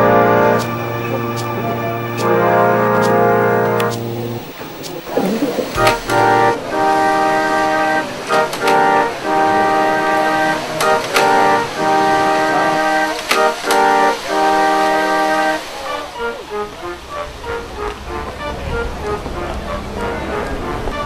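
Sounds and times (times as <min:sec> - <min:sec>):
electronic organ chords: 0:00.0 - 0:15.5.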